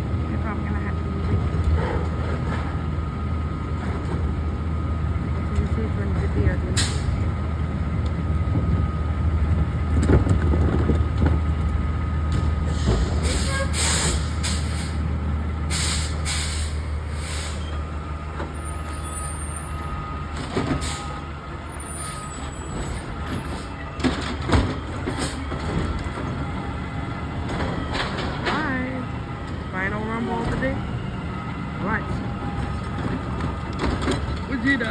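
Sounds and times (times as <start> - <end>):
diesel engine humming: 0.0 - 34.9
air brakes hissing: 6.8 - 7.2, 12.6 - 15.1, 15.7 - 17.9, 20.7 - 23.8.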